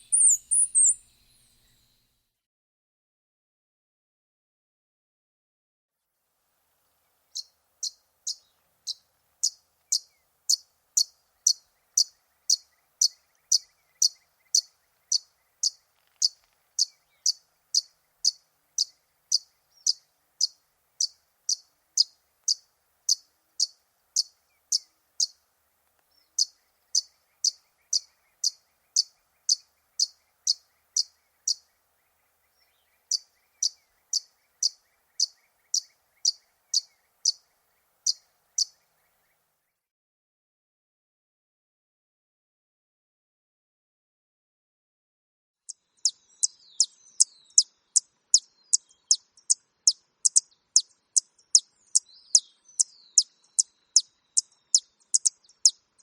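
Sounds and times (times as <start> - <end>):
bird short high calls: 0.0 - 1.9.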